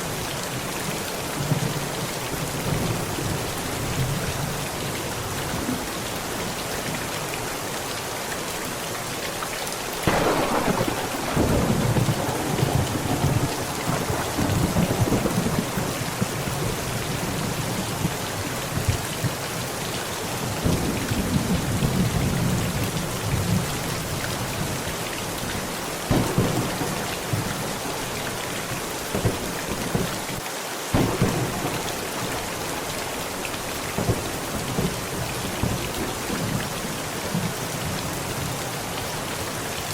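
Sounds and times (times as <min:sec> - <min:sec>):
heavy rain on a tent: 0:00.0 - 0:39.9
thunder cracks: 0:10.0 - 0:16.4, 0:26.1 - 0:28.2, 0:30.9 - 0:32.8
thunder rumbling: 0:10.0 - 0:18.2, 0:26.1 - 0:36.6.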